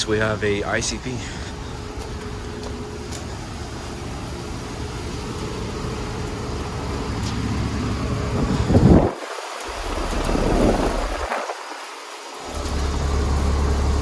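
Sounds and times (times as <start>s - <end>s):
air conditioner compressor hum: 0.0s - 14.0s
loud air rush: 7.3s - 12.6s.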